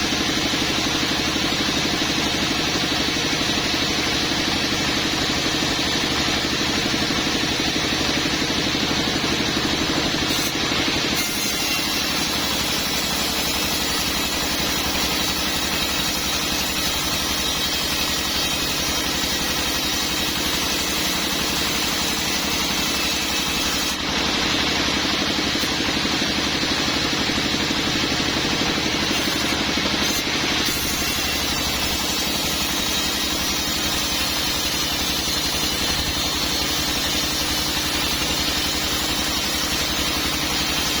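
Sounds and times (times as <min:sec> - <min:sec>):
sawmill machinery droning: 0:00.0 - 0:41.0
saw blade cutting wood hiss: 0:10.0 - 0:24.6, 0:28.6 - 0:41.0.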